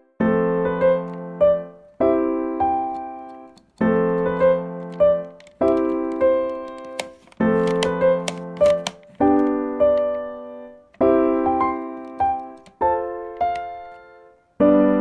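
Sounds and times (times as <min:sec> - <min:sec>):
light clicks: 0:02.6 - 0:10.2, 0:10.9 - 0:14.1.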